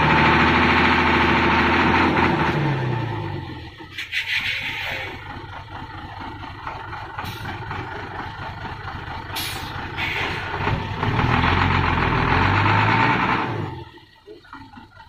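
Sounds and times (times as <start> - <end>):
diesel truck engine running: 0.0 - 15.0
short hisses: 4.0 - 5.2.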